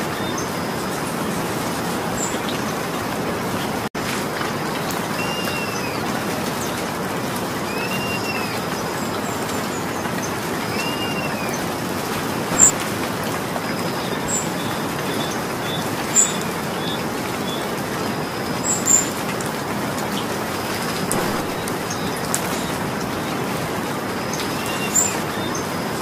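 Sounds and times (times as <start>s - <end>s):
steady rain falling: 0.0s - 26.0s
birds chirping: 7.6s - 12.9s, 13.7s - 26.0s.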